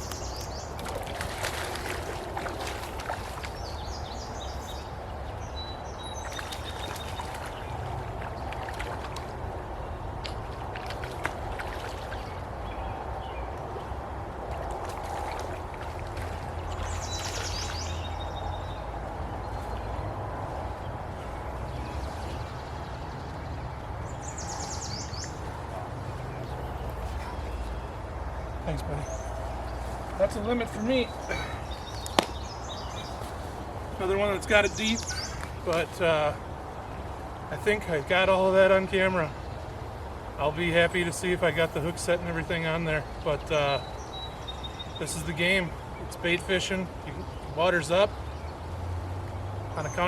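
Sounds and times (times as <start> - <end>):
bird chirping: 0.0 - 1.1, 16.5 - 36.0
river water running: 0.0 - 50.0.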